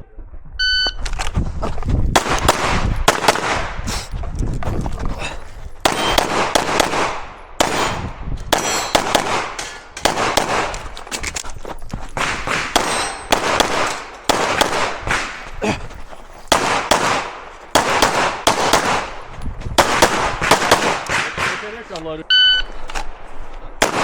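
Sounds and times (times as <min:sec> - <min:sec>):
pistol shots echoing: 0:02.2 - 0:03.8, 0:05.8 - 0:11.0, 0:12.2 - 0:15.5, 0:16.5 - 0:22.0, 0:23.0 - 0:24.0.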